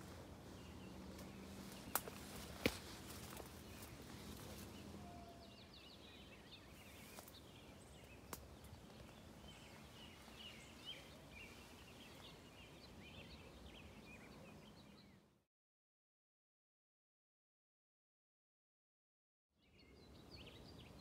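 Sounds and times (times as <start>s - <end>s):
small birds chirping: 0.0s - 15.4s, 19.6s - 21.0s.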